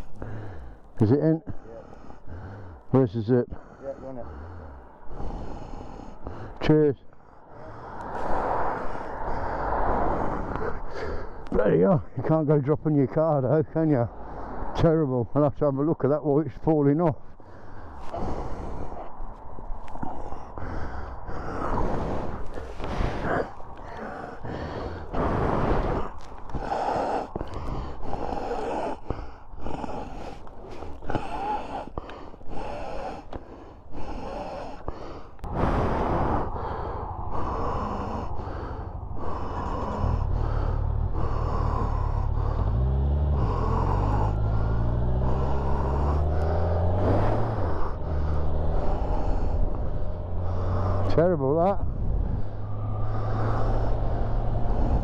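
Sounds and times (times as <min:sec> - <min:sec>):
rustling and buffeting noise: 0:17.2 - 0:55.0
motorcycle engine accelerating: 0:39.4 - 0:51.2, 0:51.8 - 0:55.0.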